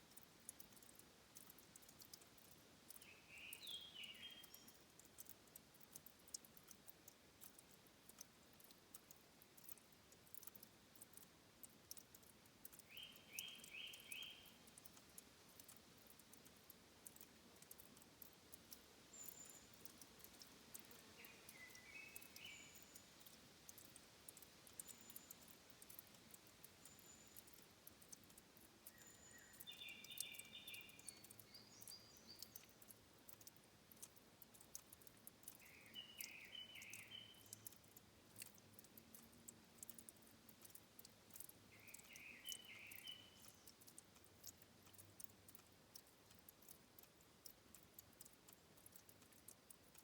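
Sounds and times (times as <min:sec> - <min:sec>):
faint high ticks: 0:00.0 - 0:50.0
songbird calls: 0:03.0 - 0:04.8, 0:12.8 - 0:14.8, 0:19.1 - 0:26.0, 0:28.8 - 0:32.7, 0:35.6 - 0:37.8, 0:41.7 - 0:43.7.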